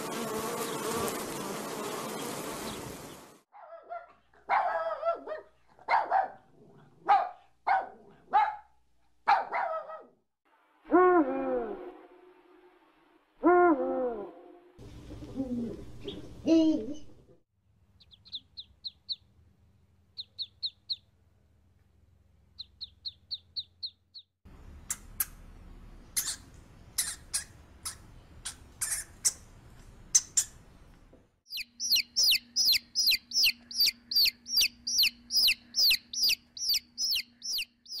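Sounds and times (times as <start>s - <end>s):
baby chicks peeping: 18.0s - 19.3s, 20.2s - 21.1s, 22.6s - 24.3s, 31.5s - 38.0s
sharp squeaks and clicks: 24.9s - 25.4s, 26.1s - 29.5s, 30.1s - 30.6s
high chirps: 31.5s - 38.0s.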